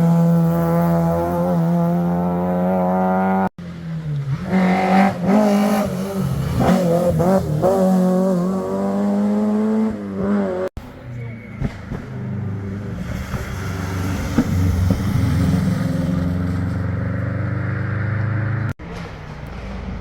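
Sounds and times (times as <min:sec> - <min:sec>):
rally car engine at high revs: 0:00.0 - 0:10.7
rally car engine revving: 0:00.0 - 0:20.0.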